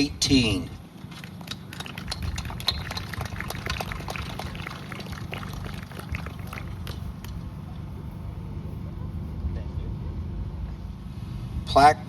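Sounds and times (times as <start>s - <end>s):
low steady rumble: 0.0s - 11.8s
crowd applause: 1.1s - 8.0s.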